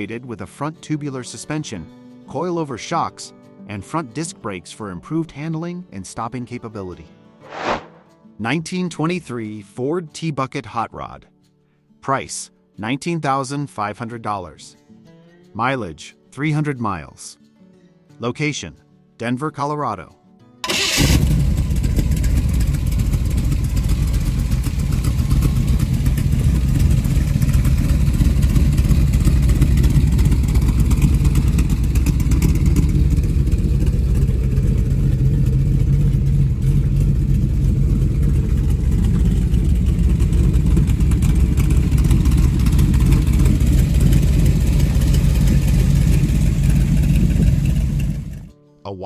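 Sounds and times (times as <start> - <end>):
loud car engine idling: 20.7 - 48.5.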